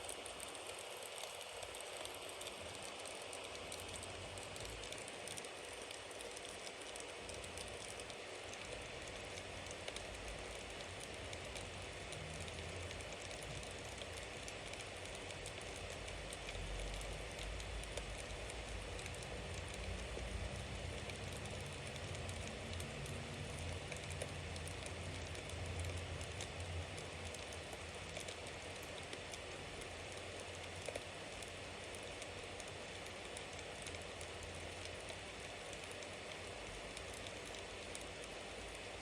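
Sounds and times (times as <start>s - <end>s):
bonfire crackling and hissing: 0.0s - 39.0s.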